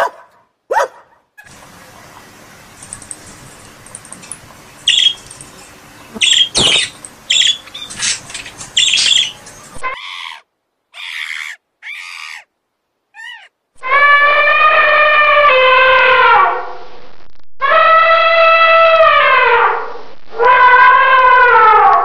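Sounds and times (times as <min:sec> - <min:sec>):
background noise: 0:00.0 - 0:22.0
long steady pitched call: 0:01.4 - 0:10.3
squawking animal calls: 0:04.2 - 0:12.5, 0:13.1 - 0:16.1.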